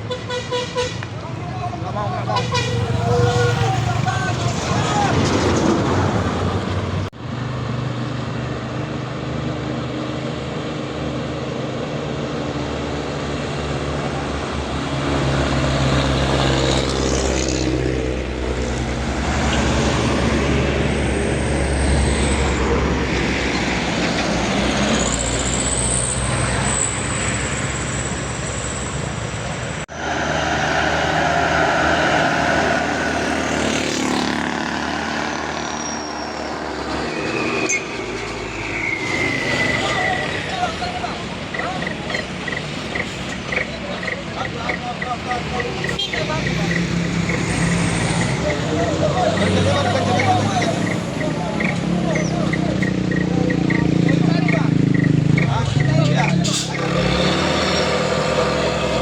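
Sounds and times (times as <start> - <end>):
truck diesel engine running: 0.0 - 7.6, 13.7 - 59.0
road noise: 0.0 - 59.0.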